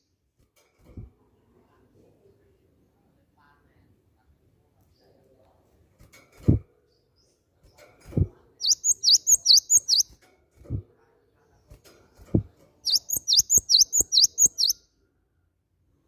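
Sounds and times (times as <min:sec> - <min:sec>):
bird singing high repeated notes: 0:08.6 - 0:10.1, 0:12.9 - 0:14.8
low thuds: 0:12.3 - 0:12.5.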